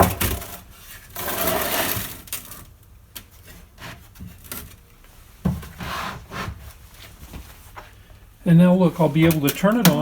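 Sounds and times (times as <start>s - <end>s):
scraping rub: 5.7s - 7.2s.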